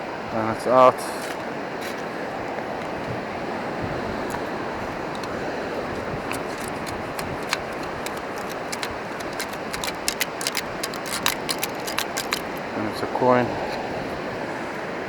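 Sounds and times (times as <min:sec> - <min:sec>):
wind: 0:00.0 - 0:15.0
sand and shells rattling in scoop: 0:06.2 - 0:12.8.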